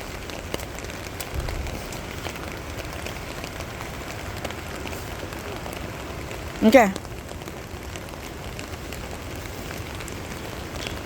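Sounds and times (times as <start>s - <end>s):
flooded river rushing: 0.0s - 11.0s
rain falling: 0.0s - 11.0s.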